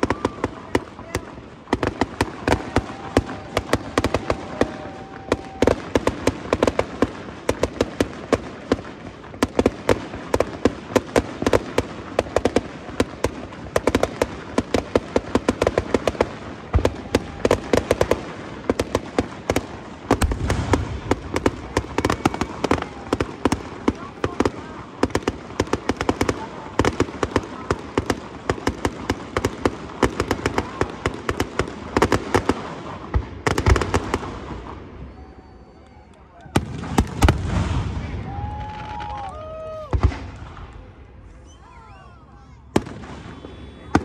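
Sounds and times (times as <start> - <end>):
fireworks bangs and crackling: 0.0 - 44.0
deep firework boom: 20.1 - 24.4, 36.6 - 41.0.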